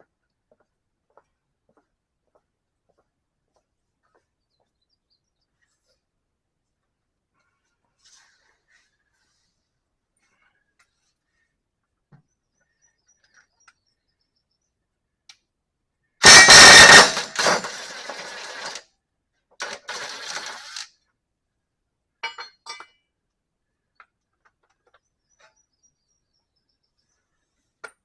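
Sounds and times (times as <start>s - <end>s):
metal clattering on mower deck: 16.2s - 18.8s.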